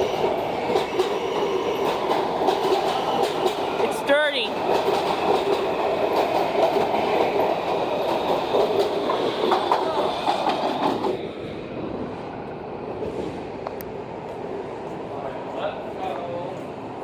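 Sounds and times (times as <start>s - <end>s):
train wheels clattering: 0.0s - 11.2s
train rumbling: 0.0s - 17.0s.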